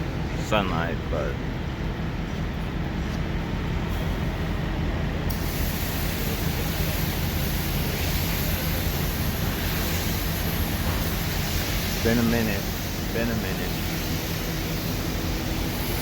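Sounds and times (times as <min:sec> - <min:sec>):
high-pressure water spray hissing: 0:05.3 - 0:16.0.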